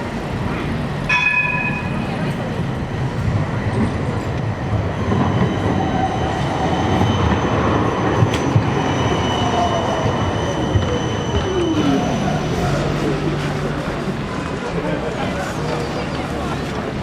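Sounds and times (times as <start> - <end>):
tram wheels rumbling on rail: 0.0 - 17.0
high-pitched wheel squeal: 5.0 - 13.1.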